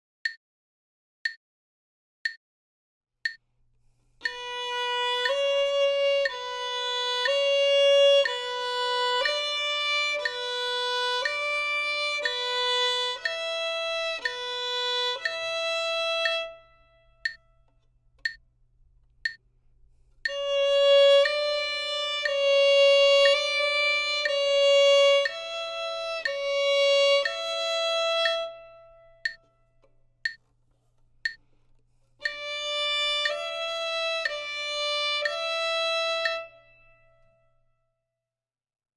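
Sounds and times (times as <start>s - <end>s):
steady ticks: 3.2s - 3.5s, 4.2s - 16.5s, 17.2s - 28.6s, 29.2s - 36.5s
solo violin playing slow notes: 4.2s - 17.3s, 20.2s - 29.4s, 32.2s - 37.4s.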